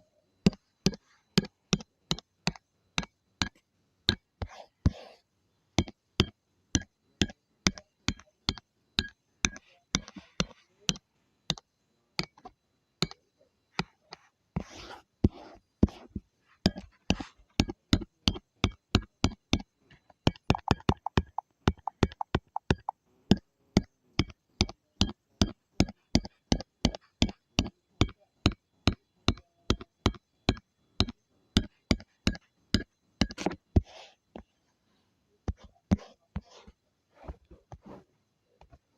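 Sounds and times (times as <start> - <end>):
drawing tool tapping: 0.4 - 5.2, 5.8 - 13.2, 13.8 - 34.5, 35.5 - 36.8
faint scratching: 13.8 - 17.5, 33.4 - 38.8.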